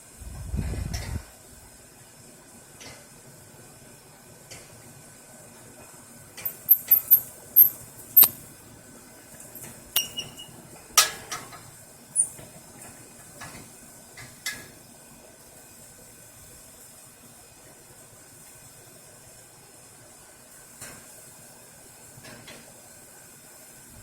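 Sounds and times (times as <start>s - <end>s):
metal tools clinking and tapping: 6.4s - 8.4s, 9.6s - 11.5s.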